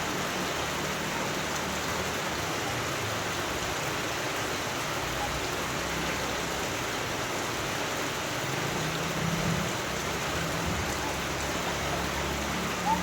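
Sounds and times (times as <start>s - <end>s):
steady rain hiss: 0.0s - 13.0s.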